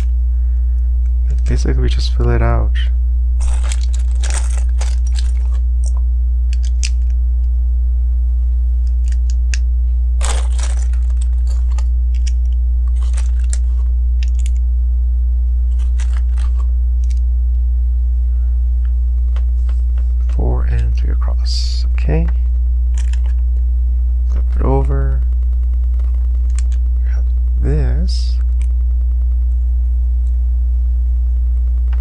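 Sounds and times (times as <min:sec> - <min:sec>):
steady low hum: 0:00.0 - 0:32.0
plastic rustle: 0:03.4 - 0:06.0, 0:10.2 - 0:14.6, 0:15.7 - 0:17.2
plastic bricks clicking together: 0:03.4 - 0:07.1, 0:08.9 - 0:09.6, 0:10.2 - 0:14.6, 0:15.8 - 0:17.2.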